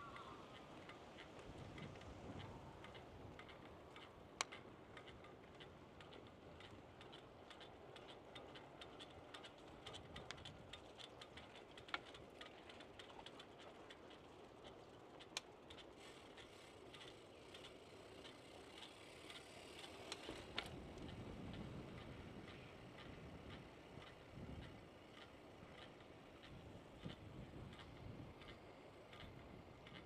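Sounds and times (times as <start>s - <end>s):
bicycle ticking and clicking: 0.0s - 30.0s
sharp loud bicycle clicks: 0.0s - 30.0s.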